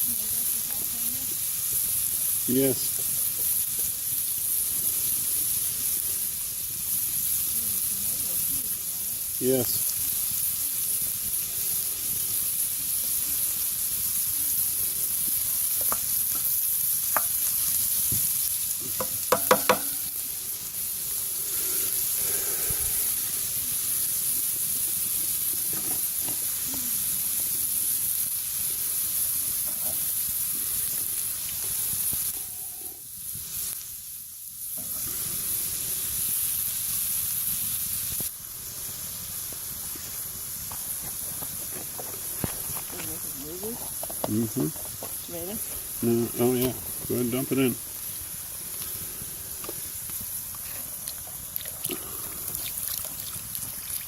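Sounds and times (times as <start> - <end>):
food sizzling in a pan: 0.0 - 54.0
utensil clicking against pan: 19.0 - 20.1.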